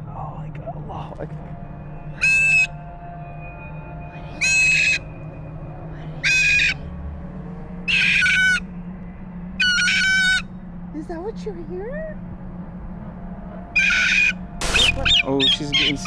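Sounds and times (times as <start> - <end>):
bird screeching: 2.1 - 3.0, 4.0 - 5.2, 5.9 - 6.9, 7.8 - 8.7, 9.6 - 10.5, 13.7 - 16.0.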